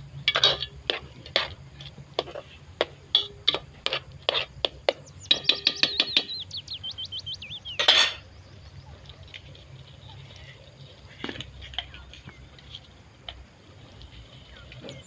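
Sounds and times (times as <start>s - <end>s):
bird singing: 4.8s - 13.2s, 14.1s - 15.0s
cutlery clinking against dishes: 5.3s - 6.4s, 7.7s - 8.3s.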